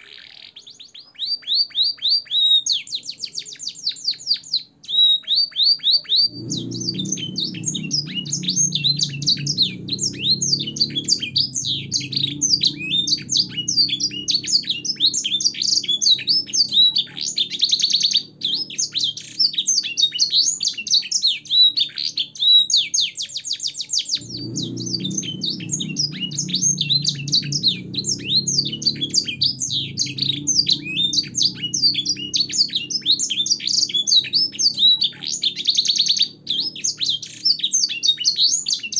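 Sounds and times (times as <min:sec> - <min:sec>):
canary singing: 0:00.0 - 0:38.9
low background rumble: 0:06.3 - 0:20.4, 0:24.2 - 0:37.8.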